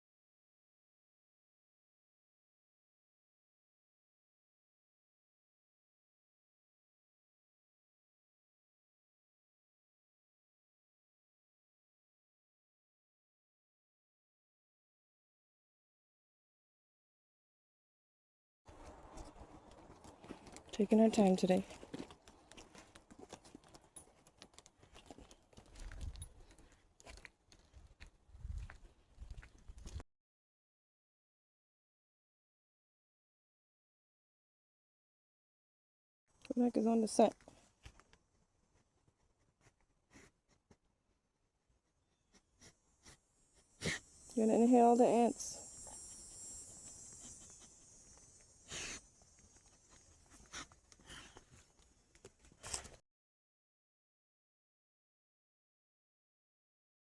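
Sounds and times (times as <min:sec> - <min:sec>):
footsteps crunching on a trail: 0:18.7 - 0:30.0
dog sniffing: 0:39.6 - 0:40.7, 0:42.3 - 0:43.2, 0:43.8 - 0:44.1, 0:45.8 - 0:51.7.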